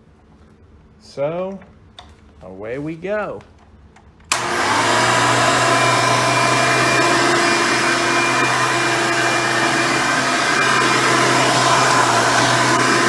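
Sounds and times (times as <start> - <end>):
upright vacuum cleaner running: 4.3 - 13.0.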